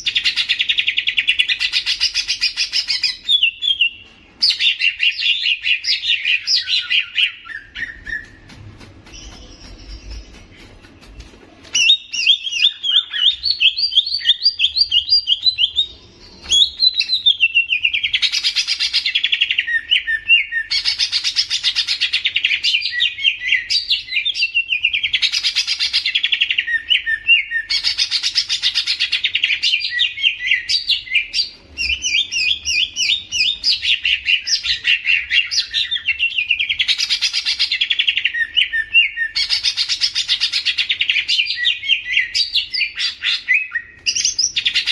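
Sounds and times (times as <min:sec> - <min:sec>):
bird singing chirps and trills: 0:09.0 - 0:44.9.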